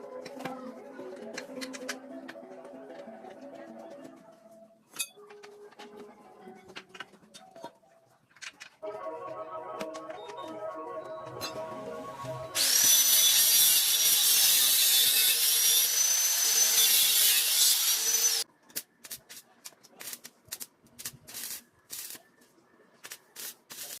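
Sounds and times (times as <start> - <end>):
power tool whining on metal: 12.6 - 18.4.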